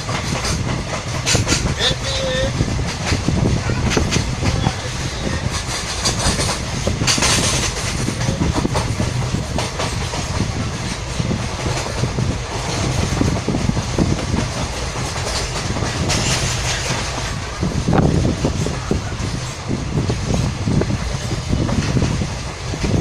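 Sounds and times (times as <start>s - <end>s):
clicks of train wheels: 0.0s - 20.5s, 21.1s - 23.0s
rush of train noise: 0.0s - 23.0s
train wheels rumbling on rails: 0.0s - 23.0s.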